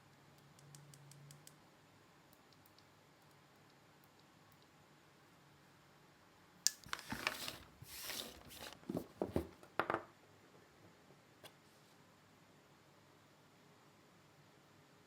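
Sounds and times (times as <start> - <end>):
packaging rustling and scraping: 6.8 - 9.6.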